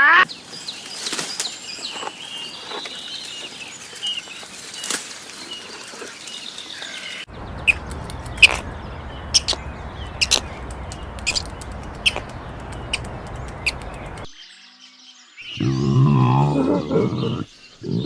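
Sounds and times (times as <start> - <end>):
bird chirping: 0.2 - 15.7
steady low background noise: 7.3 - 14.3.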